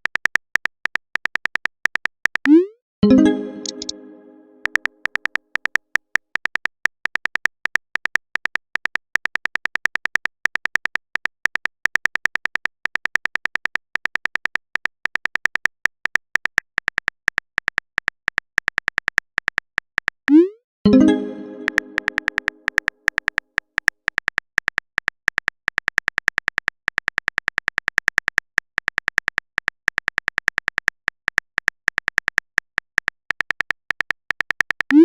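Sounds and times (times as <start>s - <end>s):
phone keyboard typing clicks: 0.0s - 4.0s, 4.6s - 35.0s
message sent pop: 2.5s - 4.8s, 20.3s - 22.8s.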